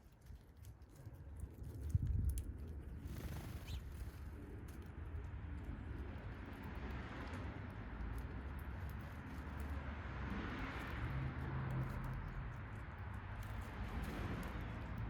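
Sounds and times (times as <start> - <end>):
road vehicle passing: 5.2 - 15.0.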